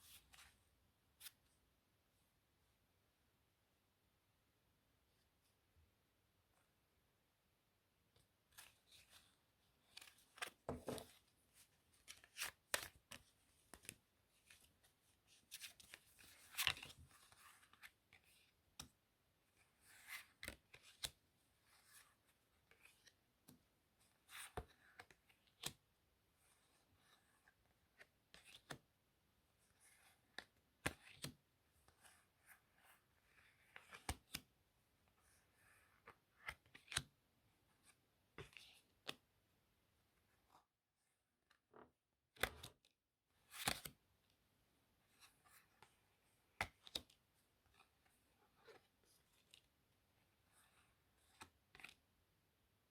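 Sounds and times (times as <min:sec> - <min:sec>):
playing cards clicking and rustling: 0:12.0 - 0:14.7, 0:15.5 - 0:18.8, 0:33.6 - 0:34.5, 0:43.4 - 0:44.0, 0:46.5 - 0:47.8.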